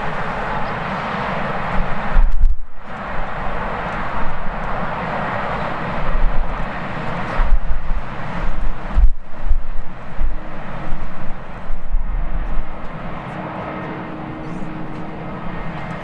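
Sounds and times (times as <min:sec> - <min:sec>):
jet engine roar: 0:00.0 - 0:16.0
wind buffeting microphone: 0:00.0 - 0:16.0.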